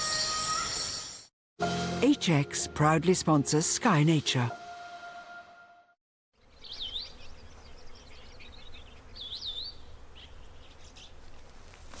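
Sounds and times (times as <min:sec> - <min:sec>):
bird chirping: 0:06.4 - 0:11.2.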